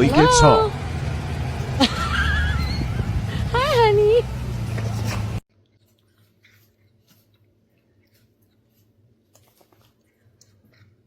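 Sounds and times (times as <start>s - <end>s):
small clicks and rustles: 4.8s - 11.0s.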